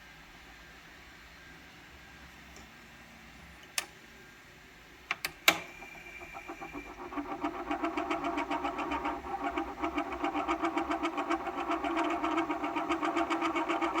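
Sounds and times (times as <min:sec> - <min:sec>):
turntable motor pulsing: 0:05.8 - 0:14.0.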